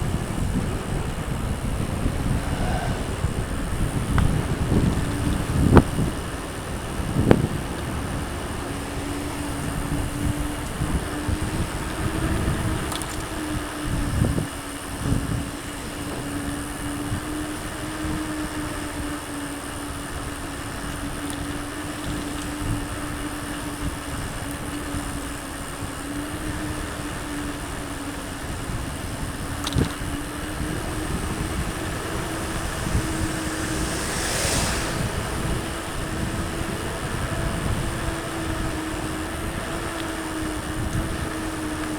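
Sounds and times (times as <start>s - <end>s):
slightly wavering hum: 0.0s - 6.2s, 29.1s - 41.9s
bike tyre rumble: 0.0s - 41.9s
wind noise on microphone: 0.0s - 41.9s.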